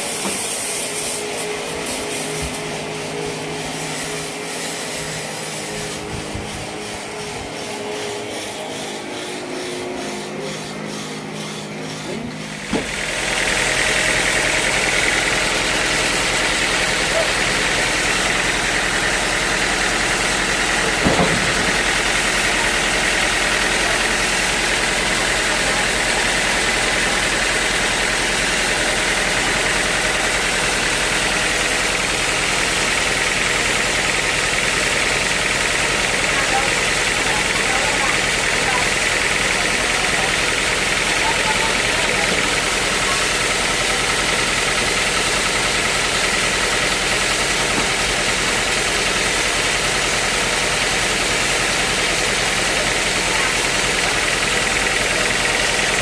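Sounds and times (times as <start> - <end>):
motor humming: 0.0 - 56.0
rhythmic rasping of a saw: 0.0 - 56.0
sawmill engine running: 0.0 - 56.0
sharp knock: 21.0 - 21.9.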